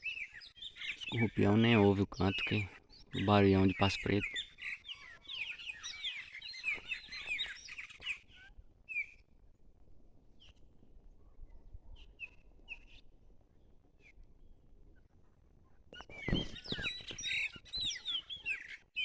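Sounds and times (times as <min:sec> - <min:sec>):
blackbirds chirping and whistling: 0:00.0 - 0:08.3, 0:16.0 - 0:19.0.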